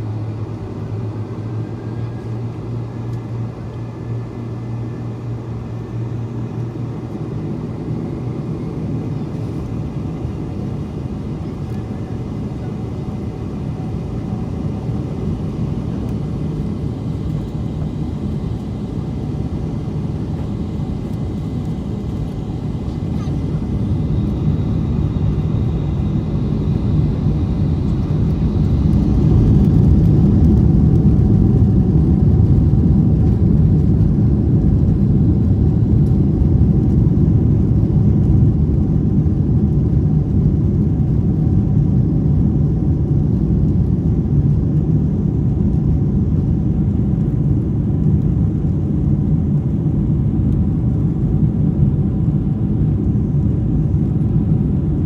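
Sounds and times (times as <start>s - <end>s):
faint engine tones: 0.0s - 37.0s
jet engine cabin rumble: 0.0s - 55.0s.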